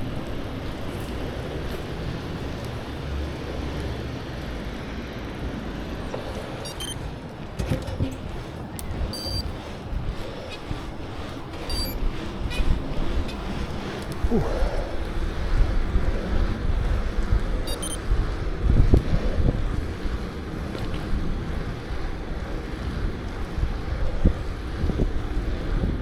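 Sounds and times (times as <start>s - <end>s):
wind rushing over microphone: 0.0s - 26.0s
scattered clicks: 6.1s - 14.4s, 17.2s - 18.1s
short high-pitched chirps: 6.6s - 7.0s, 9.2s - 9.4s, 17.7s - 18.0s.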